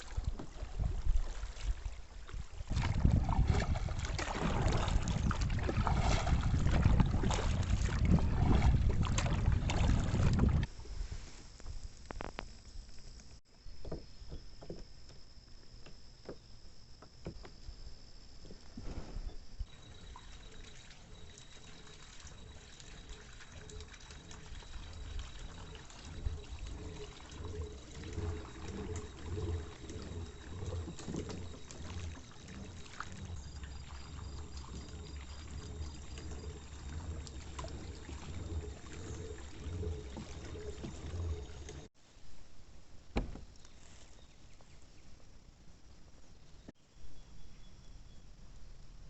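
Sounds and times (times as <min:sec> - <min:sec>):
paddle dripping: 0:00.0 - 0:10.7, 0:19.7 - 0:41.9
water splashing around kayak: 0:00.0 - 0:12.2, 0:18.8 - 0:42.0.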